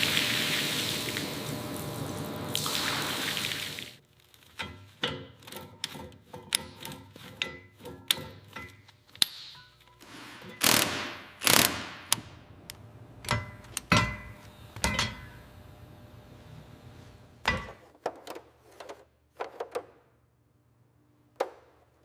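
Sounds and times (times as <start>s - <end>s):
loud noisy bursts: 10.1s - 13.2s.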